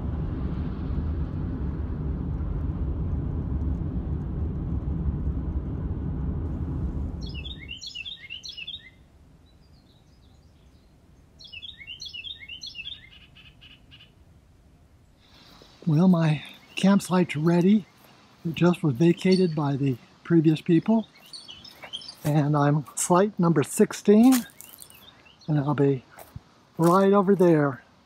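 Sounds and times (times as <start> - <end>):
steady low rumble: 0.0 - 11.5, 13.4 - 28.0
songbird chirping: 7.1 - 28.0.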